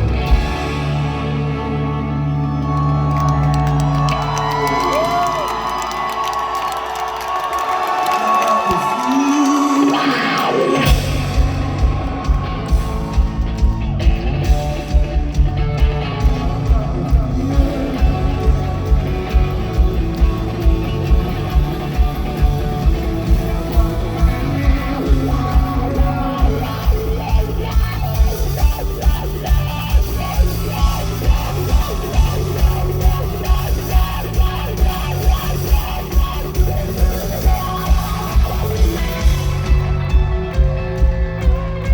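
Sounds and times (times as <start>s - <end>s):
electric guitars: 0.0s - 41.9s
person singing: 7.6s - 13.3s, 14.9s - 39.8s
heavy drum beat: 9.5s - 41.9s.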